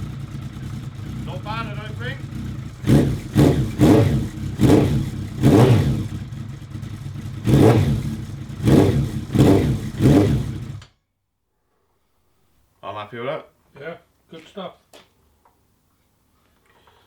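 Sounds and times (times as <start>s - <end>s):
motorcycle engine revving over idle: 0.0s - 10.9s.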